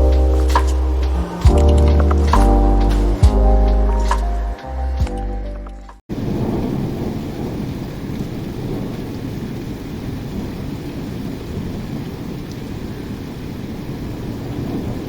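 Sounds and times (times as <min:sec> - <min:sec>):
heavy rain falling: 0:00.0 - 0:04.2, 0:06.1 - 0:15.0
music track: 0:00.0 - 0:06.0
low rumble of thunder: 0:06.1 - 0:15.0.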